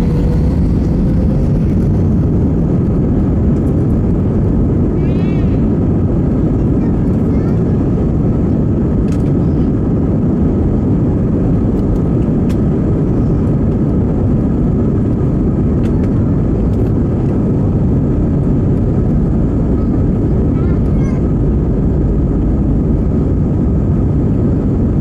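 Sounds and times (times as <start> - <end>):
airplane cabin engine rumble: 0.0 - 25.0.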